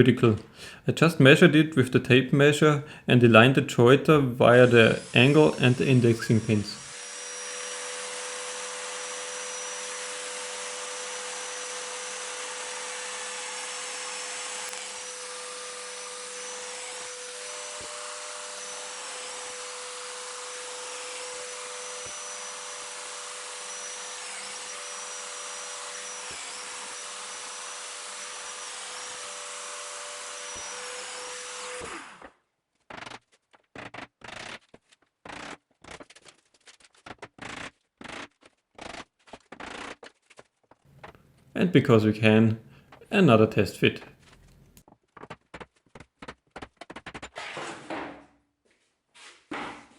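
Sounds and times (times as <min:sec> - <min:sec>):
power joiner cutting: 0:04.1 - 0:34.6, 0:35.2 - 0:36.2, 0:37.1 - 0:40.0.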